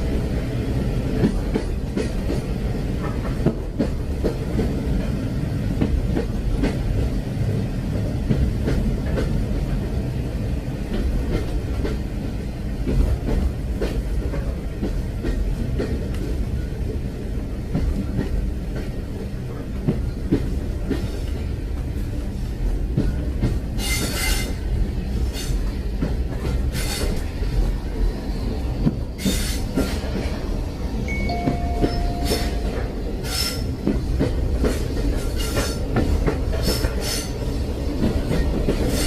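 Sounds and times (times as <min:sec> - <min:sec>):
train rumbling on rails: 0:00.0 - 0:39.0.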